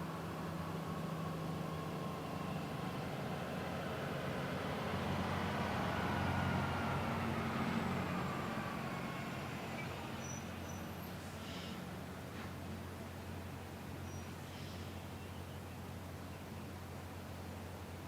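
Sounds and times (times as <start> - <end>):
diesel locomotive engines drone: 0.0 - 15.7.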